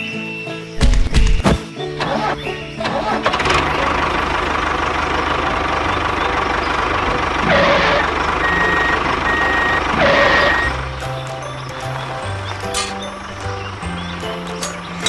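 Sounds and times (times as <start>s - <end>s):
vehicle engine running: 1.9s - 15.0s
reversing alarm beeps: 7.9s - 10.8s.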